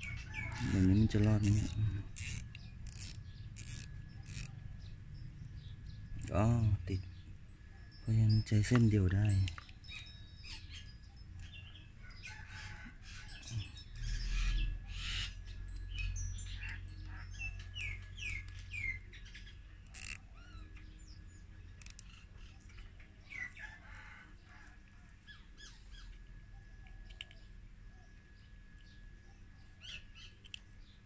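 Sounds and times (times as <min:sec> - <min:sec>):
small birds chirping: 0:00.0 - 0:31.0
plastic cable tie clicks and rustles: 0:19.8 - 0:20.2, 0:21.8 - 0:22.1.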